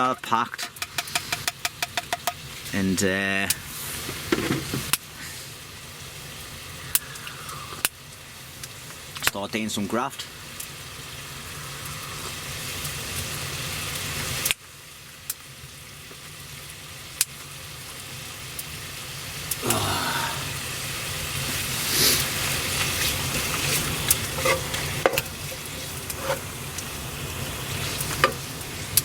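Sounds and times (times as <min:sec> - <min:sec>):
bacon sizzling in a pan: 0:00.0 - 0:29.0
fat popping and spitting: 0:06.8 - 0:08.0.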